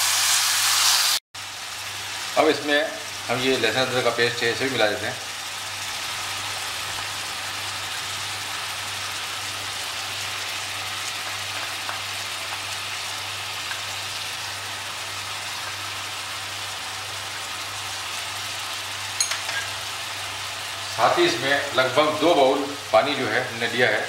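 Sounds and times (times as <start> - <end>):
meat and onions sizzling in a pan: 0.0 - 24.0
spoon tapping a pot: 19.2 - 19.7.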